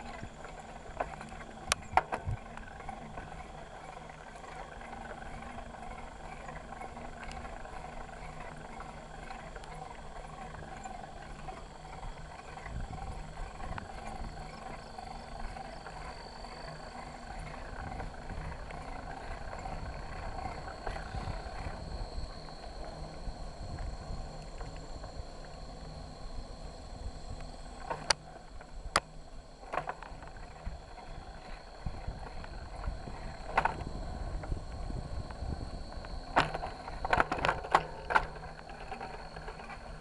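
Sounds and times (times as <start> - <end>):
bike rattles and clicks: 27.8 - 40.0.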